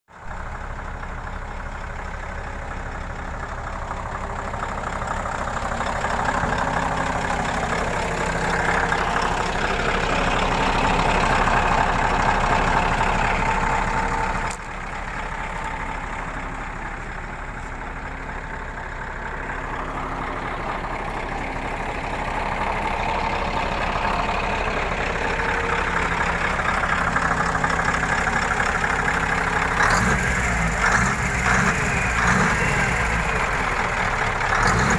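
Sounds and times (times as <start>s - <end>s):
truck diesel engine running: 0.1s - 34.9s.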